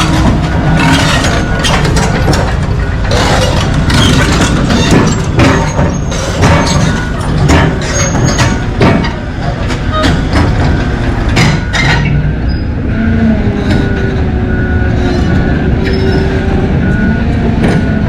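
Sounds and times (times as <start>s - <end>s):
heavy metal clanks: 0.0s - 12.5s
excavator diesel engine running: 0.0s - 18.0s
warning alarm beeping: 11.6s - 18.0s.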